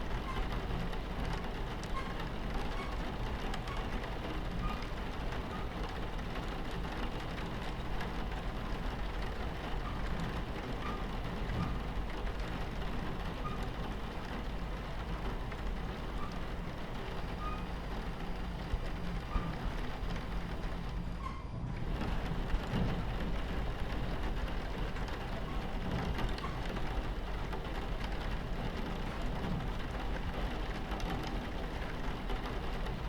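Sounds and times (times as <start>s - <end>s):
rain pattering on window: 0.0s - 33.0s
train rumbling on tracks: 0.0s - 33.0s.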